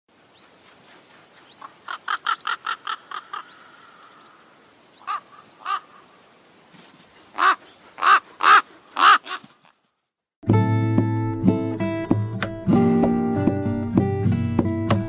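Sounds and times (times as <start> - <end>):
crow cawing: 1.9 - 6.2, 7.3 - 9.6.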